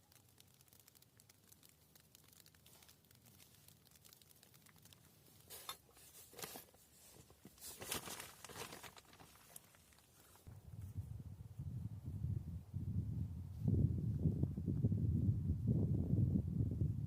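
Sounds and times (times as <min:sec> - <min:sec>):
faint light pattering ticks: 0:00.0 - 0:05.8
crinkling rustling sounds: 0:00.0 - 0:10.6.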